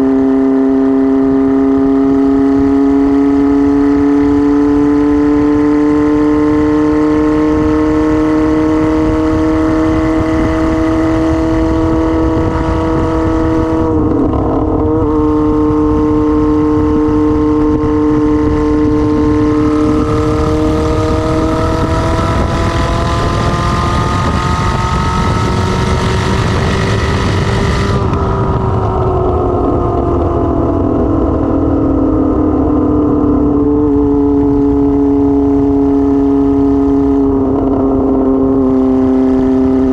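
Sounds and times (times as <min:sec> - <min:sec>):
motorcycle engine running loud: 0:00.0 - 0:39.9.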